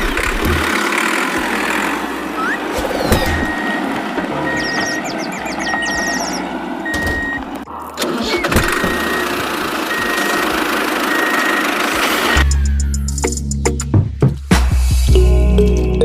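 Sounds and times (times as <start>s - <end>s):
tractor engine running: 0.0s - 12.7s
high beeps: 2.2s - 7.4s.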